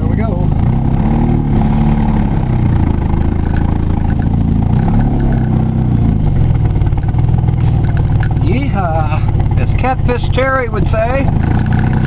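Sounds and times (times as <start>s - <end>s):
vehicle engine accelerating: 0.0s - 12.0s.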